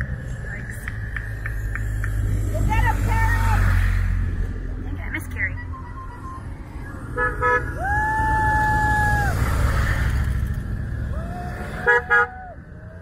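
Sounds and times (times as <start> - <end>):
motorcycle engines rumbling: 0.0 - 13.0
horns honking: 5.3 - 7.8, 11.7 - 12.5.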